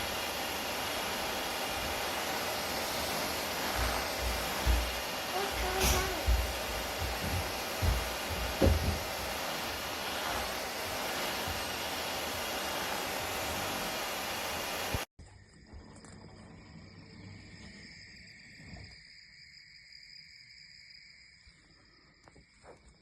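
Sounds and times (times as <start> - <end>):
floor cleaner suction motor: 0.0 - 15.1.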